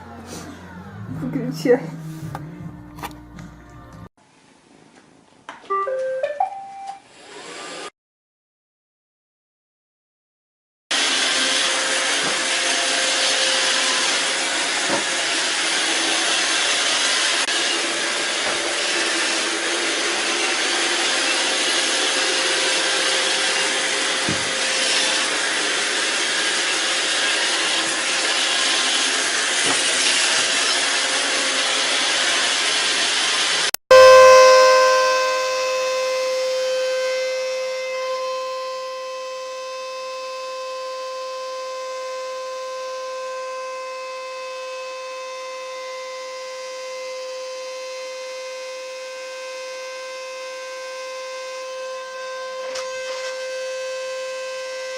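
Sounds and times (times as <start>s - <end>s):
sustained tone with overtones: 0.0s - 4.1s, 33.9s - 45.5s
vacuum cleaner running: 0.0s - 4.1s, 7.0s - 7.9s, 10.9s - 54.9s.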